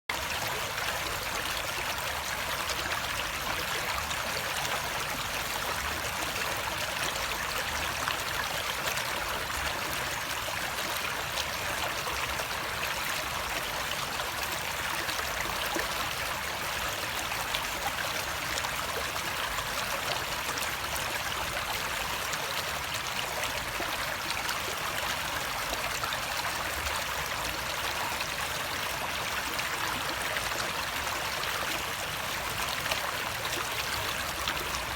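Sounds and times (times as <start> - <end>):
stream flowing over rocks: 0.1 - 34.9.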